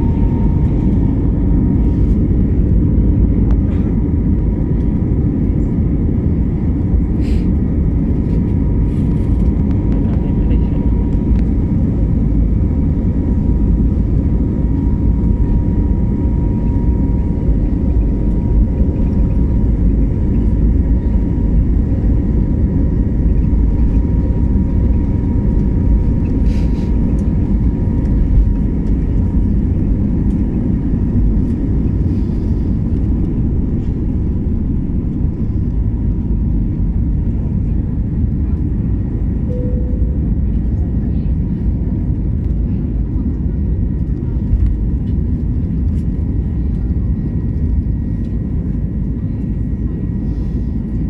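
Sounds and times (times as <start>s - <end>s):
jet engines low rumble: 0.0s - 51.0s
thin steady whine: 39.3s - 41.4s.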